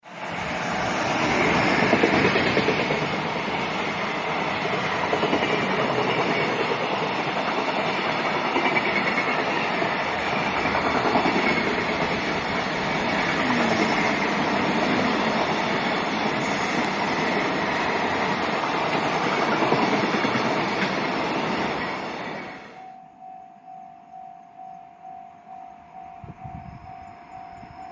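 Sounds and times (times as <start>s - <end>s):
freight train passing on rails: 0.0s - 23.1s, 24.5s - 27.9s
faint pulsing alarm tone: 22.7s - 27.9s.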